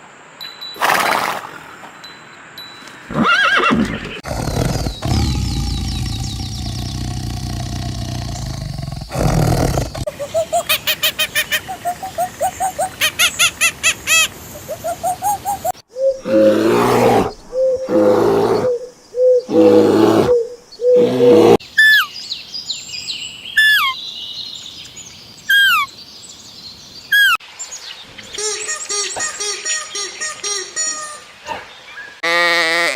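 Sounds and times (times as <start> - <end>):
low rumbling animal call: 4.2 - 10.1
small bird chirping: 4.2 - 16.2, 21.7 - 27.4.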